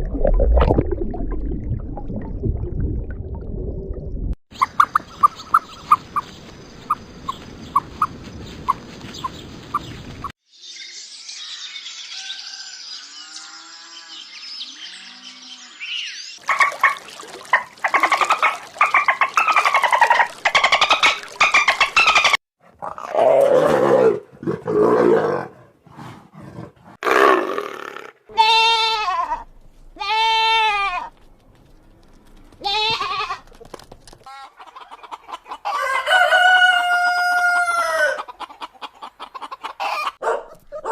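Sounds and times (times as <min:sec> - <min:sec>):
gliding animal calls: 0:16.5 - 0:22.4
bleat-like animal calls: 0:28.3 - 0:29.4, 0:30.0 - 0:31.1.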